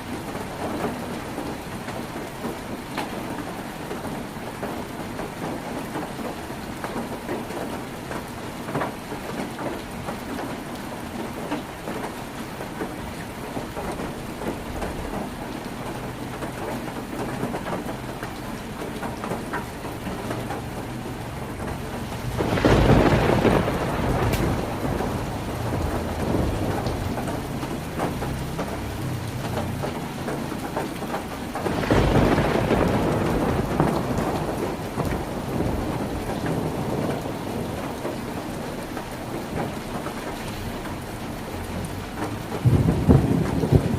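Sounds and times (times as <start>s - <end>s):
rain on a tin roof: 0.0s - 43.9s
thunder rumbling: 18.8s - 40.3s, 41.8s - 43.9s.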